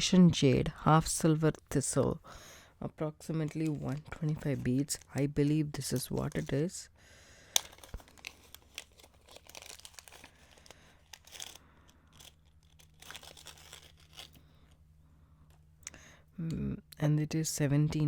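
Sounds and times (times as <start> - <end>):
plastic bag crinkling: 3.2 - 14.8.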